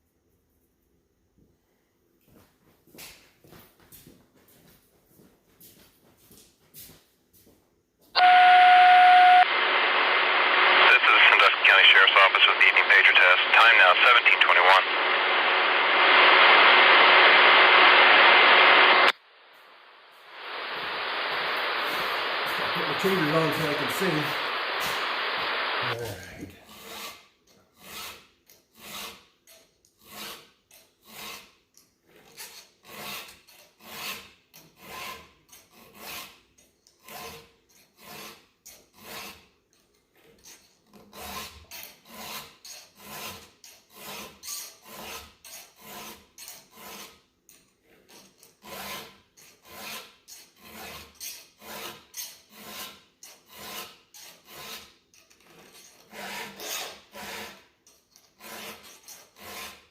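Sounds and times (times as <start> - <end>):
file scraping chainsaw chain: 26.6 - 59.9.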